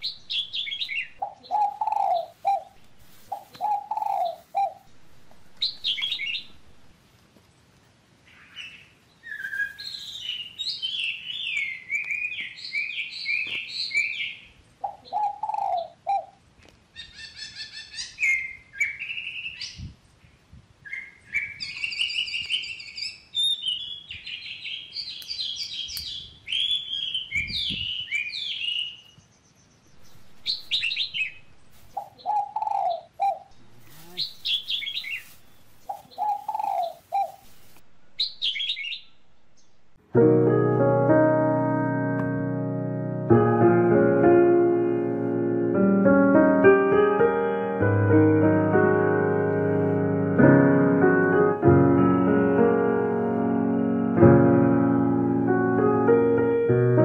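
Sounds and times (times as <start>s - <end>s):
birds chirping and warbling: 0.0s - 6.8s, 8.2s - 40.0s
lower short bird call: 30.1s - 37.4s.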